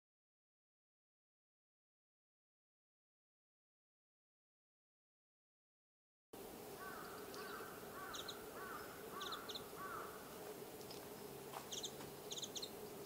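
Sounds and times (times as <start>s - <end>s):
small birds chirping: 6.4s - 13.0s
steady low hum: 6.4s - 13.0s
bird arching call notes: 6.8s - 11.0s, 11.6s - 12.8s.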